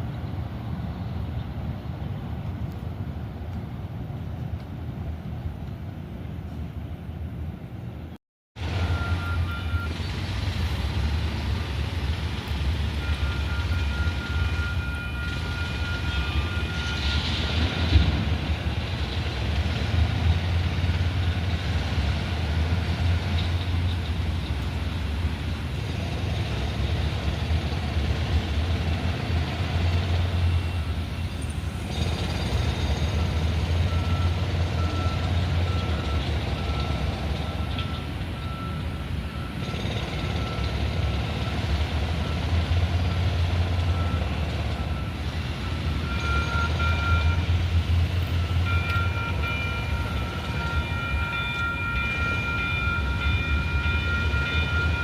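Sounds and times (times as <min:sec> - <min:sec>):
train rumble and hum: 0:00.0 - 0:55.0
high beeping tone: 0:08.8 - 0:10.0, 0:13.0 - 0:17.3, 0:43.9 - 0:47.6, 0:48.3 - 0:55.0.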